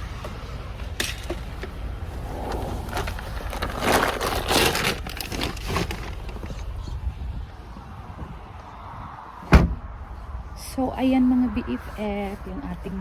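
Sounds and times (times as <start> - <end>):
rustling and crackling: 0.0 - 8.5
low rumble: 1.4 - 9.0.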